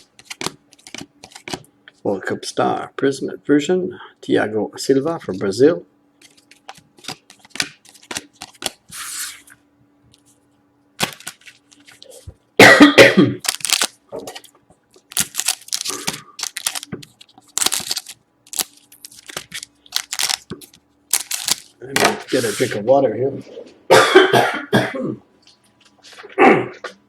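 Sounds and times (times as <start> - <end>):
trading cards rustling: 0.0 - 1.7, 6.2 - 9.5, 11.0 - 12.3, 13.4 - 22.8
man coughing: 12.6 - 13.4, 23.9 - 25.2.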